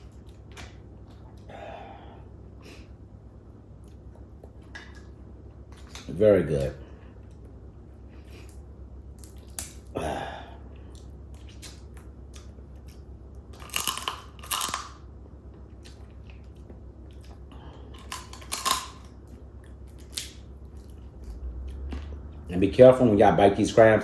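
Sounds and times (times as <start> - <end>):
chewing crab shell: 10.8 - 22.5.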